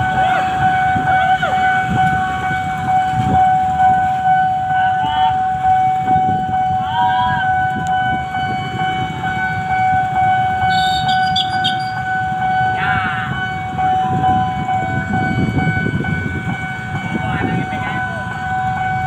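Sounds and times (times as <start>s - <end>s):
high warning tone: 0.0s - 19.0s
train wheels rumbling on rails: 0.0s - 19.0s.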